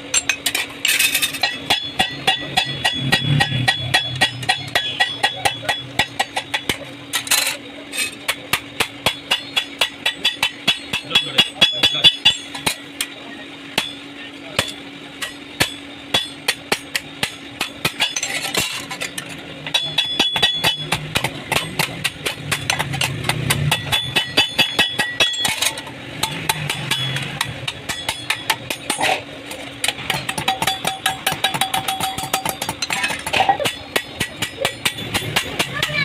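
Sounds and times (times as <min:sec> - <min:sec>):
low engine-like hum: 0:00.0 - 0:36.0
hammer on sheet metal: 0:01.3 - 0:06.8, 0:08.2 - 0:12.8, 0:14.6 - 0:29.2, 0:29.8 - 0:36.0.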